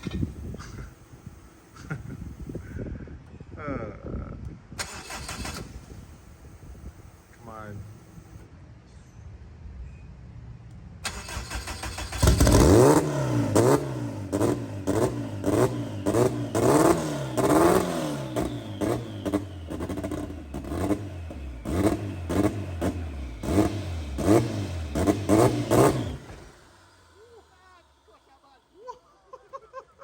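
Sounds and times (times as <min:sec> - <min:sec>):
car engine revving: 0:11.0 - 0:28.2
sharp exhaust cracks: 0:11.0 - 0:28.3.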